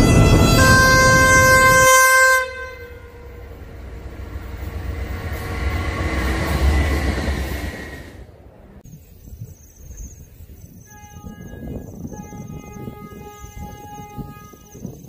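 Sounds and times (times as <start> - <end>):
diesel locomotive horn: 0.0 - 7.6, 10.8 - 15.0
railway wagons rumbling past: 0.0 - 8.9.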